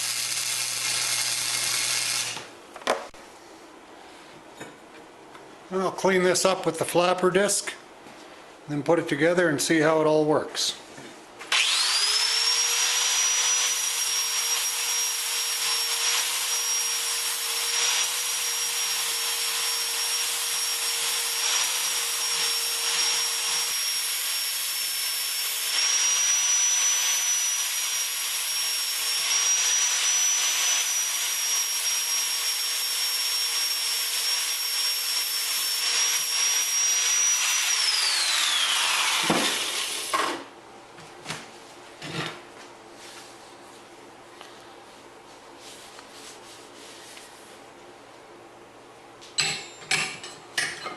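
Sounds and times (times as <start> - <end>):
angle grinder grinding metal: 0.0 - 2.5, 11.5 - 40.2.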